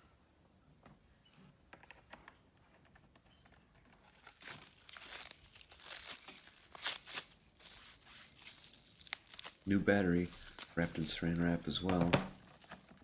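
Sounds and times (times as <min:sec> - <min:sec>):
plastic cling wrap crinkling and tearing: 0:04.0 - 0:13.0.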